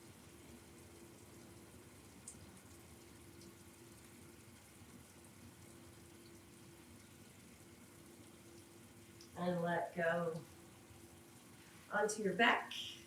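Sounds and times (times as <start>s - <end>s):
faint room hiss: 0.0s - 13.0s
faint tick: 8.6s - 9.4s.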